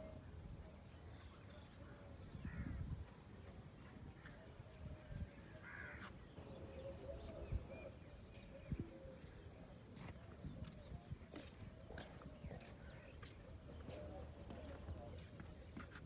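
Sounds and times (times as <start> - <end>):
crow cawing: 5.6 - 6.1.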